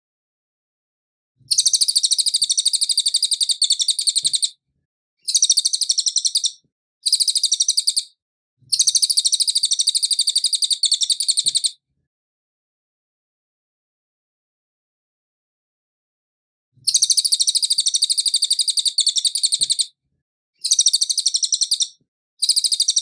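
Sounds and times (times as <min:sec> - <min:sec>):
bird singing trilled phrases: 0:01.4 - 0:04.6, 0:05.2 - 0:11.8, 0:16.9 - 0:19.9, 0:20.6 - 0:23.0.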